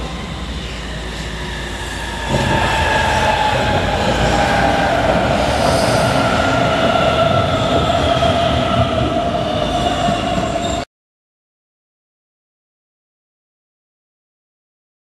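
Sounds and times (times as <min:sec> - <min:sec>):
train wheels rumbling on rails: 0:00.0 - 0:10.8.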